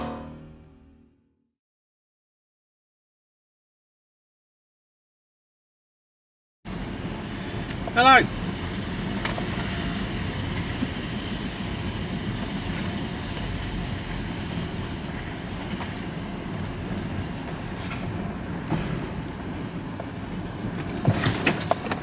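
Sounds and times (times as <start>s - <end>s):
vehicle engine idling: 6.7s - 21.0s.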